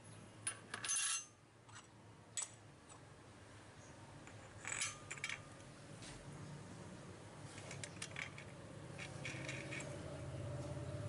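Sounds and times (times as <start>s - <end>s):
small hard parts clinking: 4.2s - 5.6s, 7.5s - 10.0s.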